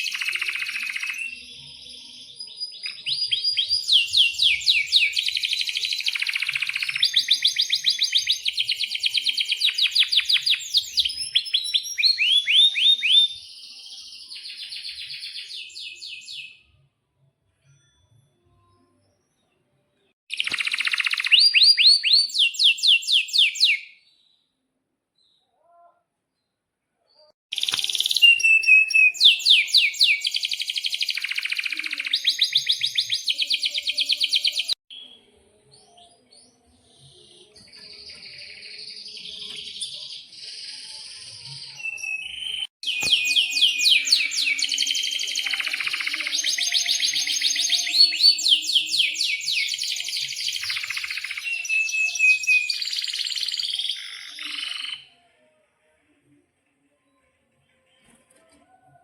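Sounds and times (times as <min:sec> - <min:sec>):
canary singing trills: 0:00.0 - 0:16.7, 0:20.3 - 0:24.0, 0:27.5 - 0:35.1, 0:36.5 - 0:55.1.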